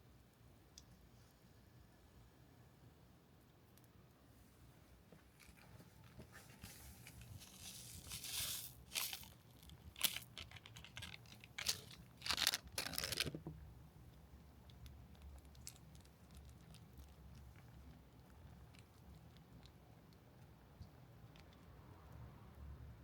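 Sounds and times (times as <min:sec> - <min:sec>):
crinkly material tearing and crumpling: 0:05.4 - 0:13.5, 0:14.8 - 0:17.7.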